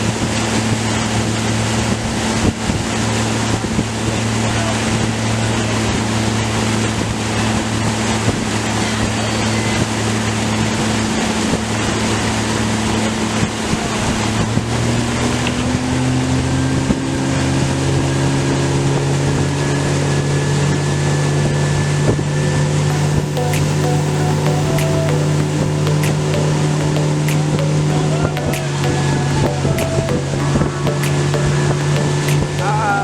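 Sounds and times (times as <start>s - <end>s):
water noise: 22.9s - 33.0s.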